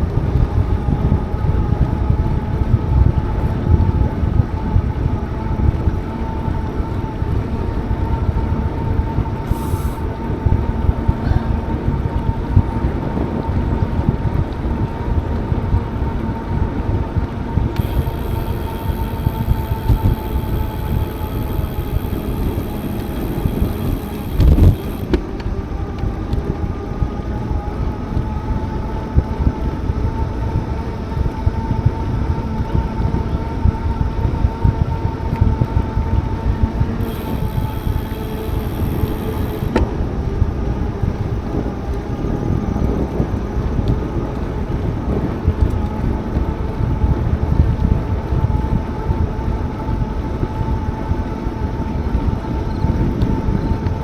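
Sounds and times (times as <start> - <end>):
bicycle rolling noise: 0.0 - 54.0
faint steady whine: 0.0 - 54.0
wind buffeting microphone: 0.0 - 54.0.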